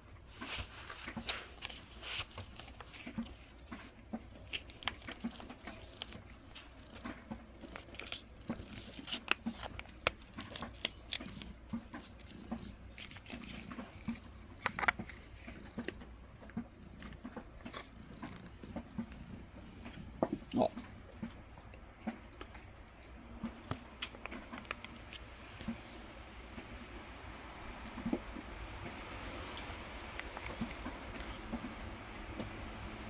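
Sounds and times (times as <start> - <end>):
cats crunching dry food: 0.3 - 26.0.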